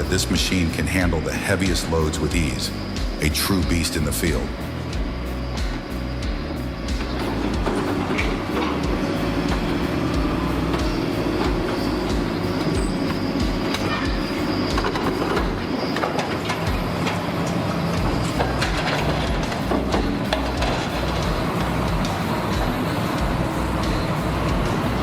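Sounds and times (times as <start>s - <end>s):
heavy machine engine: 0.0s - 25.0s
metallic clanks: 6.9s - 24.8s.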